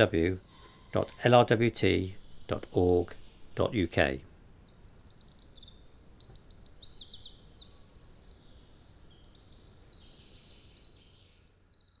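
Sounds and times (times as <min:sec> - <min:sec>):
birds chirping and trilling: 0:00.0 - 0:12.0.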